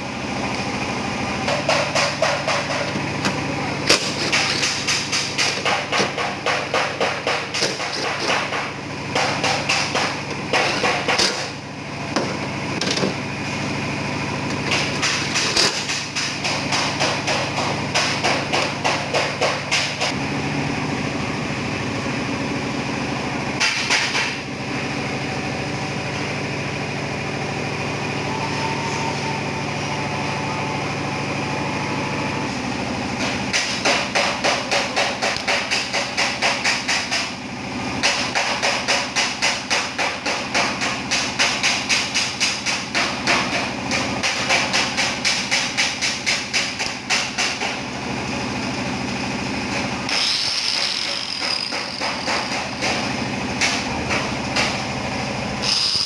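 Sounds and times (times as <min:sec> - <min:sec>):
machine hum: 0:00.0 - 0:38.5.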